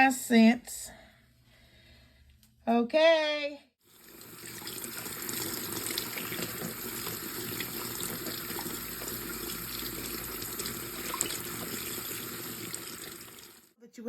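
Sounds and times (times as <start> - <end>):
kitchen tap running into sink: 3.9 - 13.7.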